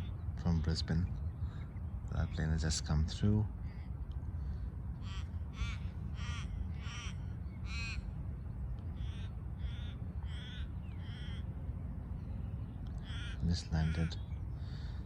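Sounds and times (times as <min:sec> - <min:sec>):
steady low rumble: 0:00.0 - 0:15.0
ravens cawing: 0:03.8 - 0:08.2, 0:08.9 - 0:11.6, 0:12.9 - 0:15.0.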